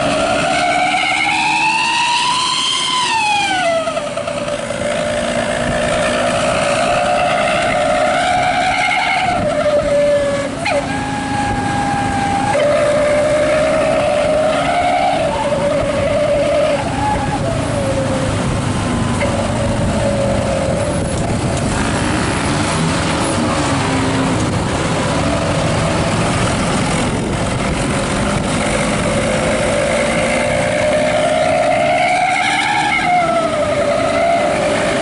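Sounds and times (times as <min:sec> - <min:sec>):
exhaust whistle howling: 0:00.0 - 0:21.4, 0:28.4 - 0:35.0.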